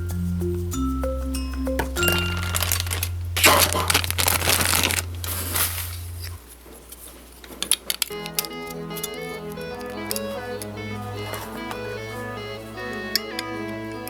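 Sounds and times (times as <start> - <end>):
mallet percussion melody: 0.0 - 6.3, 8.1 - 14.0
held bass note: 0.0 - 6.5
packaging crinkling and rustling: 2.0 - 8.3.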